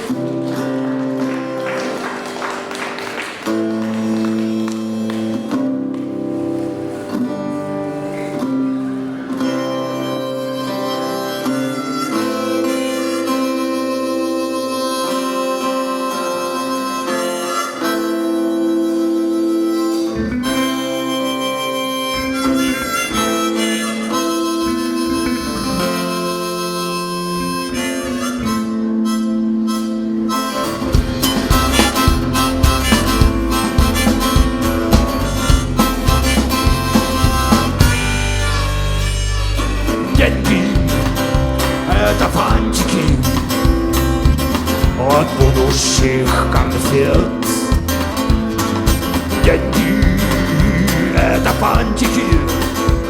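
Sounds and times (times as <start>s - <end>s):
audience applause: 0.0s - 6.6s
guitar: 0.0s - 53.0s
live rock band playing: 0.0s - 53.0s.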